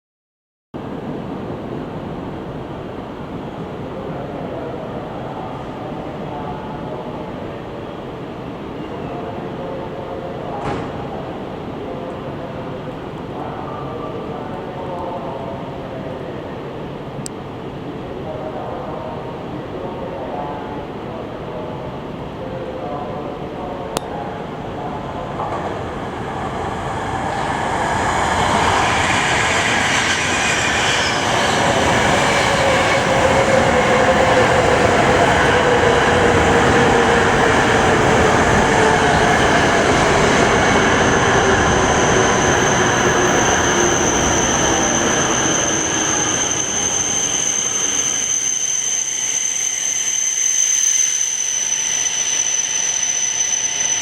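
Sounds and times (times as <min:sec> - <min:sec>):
train rumble: 0:09.1 - 0:48.4.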